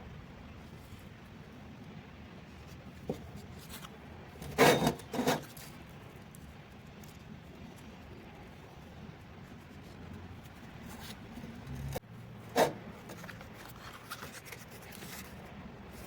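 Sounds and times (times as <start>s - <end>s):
light scraping and rubbing: 2.7s - 5.9s, 9.5s - 16.0s.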